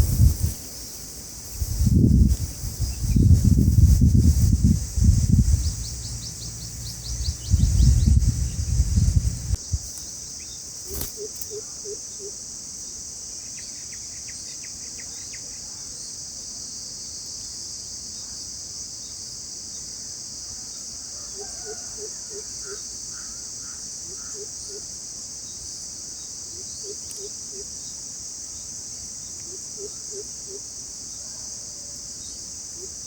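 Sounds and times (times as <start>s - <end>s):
insects droning: 0.0s - 33.0s
heavy low rumble: 1.8s - 9.6s
rapid bird chirps: 5.2s - 9.6s.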